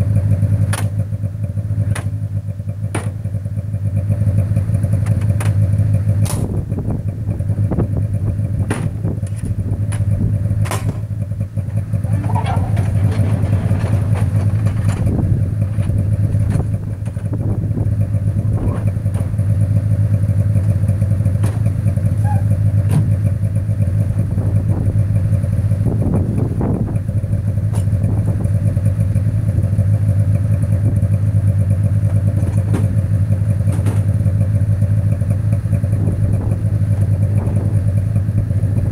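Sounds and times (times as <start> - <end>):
engine idling: 0.0 - 38.9
clicks knocks and clatter: 5.0 - 5.6, 8.7 - 11.1, 12.2 - 15.2, 33.6 - 34.2.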